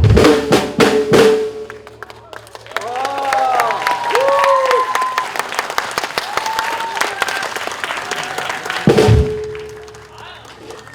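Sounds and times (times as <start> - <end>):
audience applauding: 1.7 - 10.9
cheering shouts: 2.2 - 9.0.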